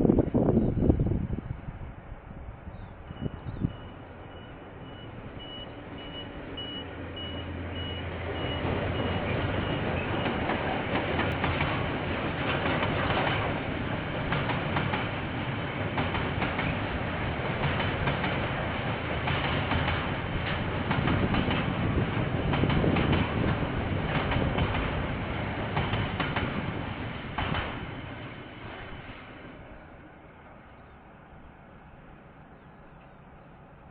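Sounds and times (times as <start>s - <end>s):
diesel train engine hum: 0.0s - 33.9s
high electronic beep: 3.2s - 9.8s.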